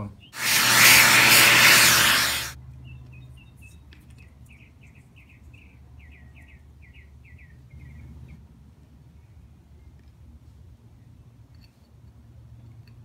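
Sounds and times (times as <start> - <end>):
loud rushing noise: 0.4 - 2.6.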